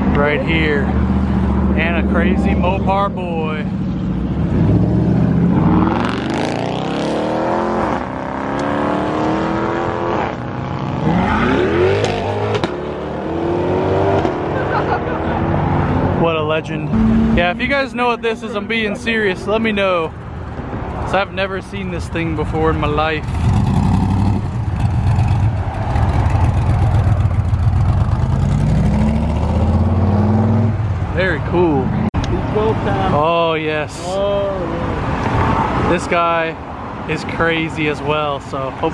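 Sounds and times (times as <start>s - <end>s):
car engine accelerating: 0.0s - 21.2s, 22.9s - 31.0s
car engine accelerating hard: 16.8s - 20.2s, 23.2s - 31.0s.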